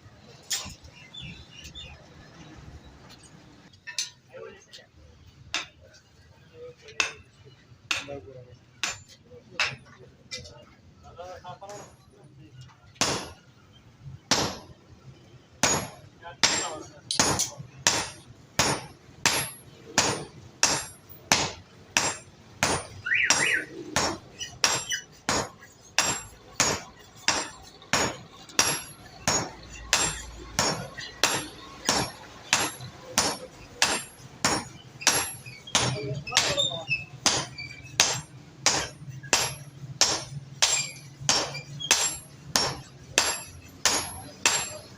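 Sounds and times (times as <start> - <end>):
hammer striking metal on anvil: 6.9 - 7.3, 7.9 - 8.2, 8.8 - 9.8, 13.0 - 13.4, 14.3 - 14.7, 15.6 - 44.9.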